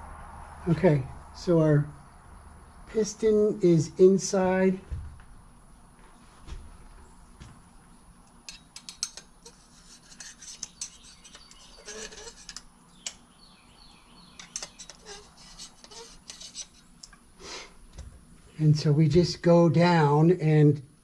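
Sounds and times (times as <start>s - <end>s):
metal parts clicking and scraping: 8.3s - 13.3s, 14.3s - 17.2s.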